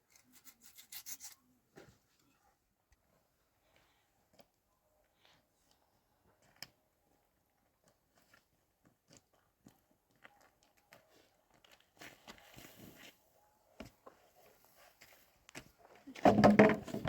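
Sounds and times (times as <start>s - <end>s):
crackly clicks and crunching: 5.6s - 12.6s.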